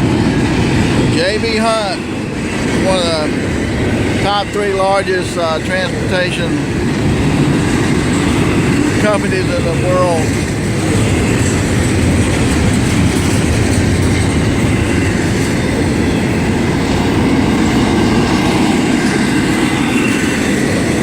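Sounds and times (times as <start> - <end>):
freight train wheels on rails: 0.0 - 21.0
fast clatter of wheels: 7.4 - 21.0.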